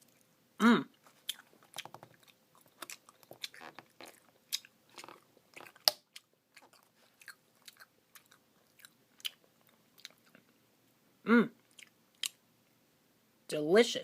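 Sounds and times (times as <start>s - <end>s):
wet chewing with clicks: 1.0s - 10.6s, 11.7s - 12.4s.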